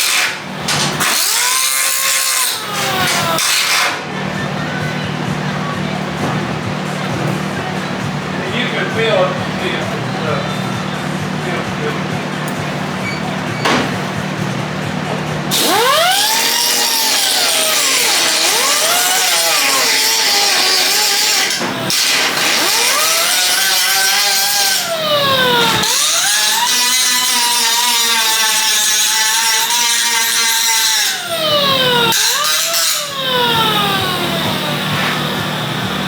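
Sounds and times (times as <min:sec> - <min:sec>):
power grinder on metal: 0:00.0 - 0:04.0, 0:15.5 - 0:36.0.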